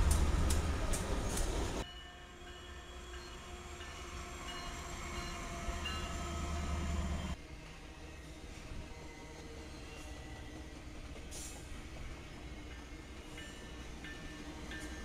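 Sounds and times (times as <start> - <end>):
wheels clacking over rail joints: 0.0 - 1.8
train passing rumble: 0.0 - 15.0.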